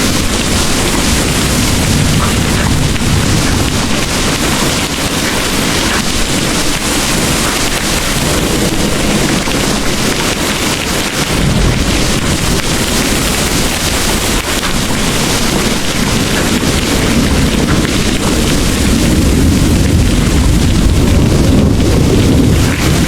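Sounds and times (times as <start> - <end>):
distant thunder rumble: 0.0 - 23.0
heavy rain pouring: 0.0 - 23.0.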